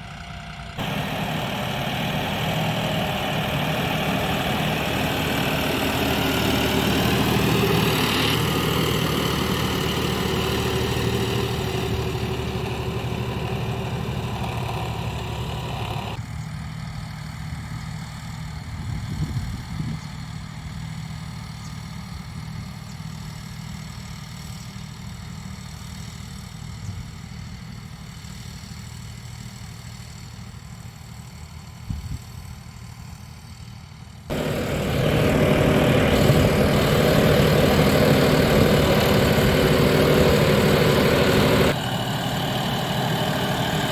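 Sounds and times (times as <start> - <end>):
tractor diesel engine running: 0.0 - 17.1, 34.1 - 43.9.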